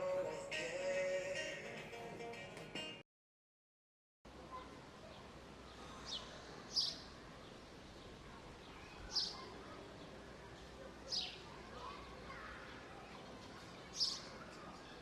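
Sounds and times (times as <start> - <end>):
faint outdoor background noise: 4.3 - 15.0
bird chirping: 5.1 - 11.4.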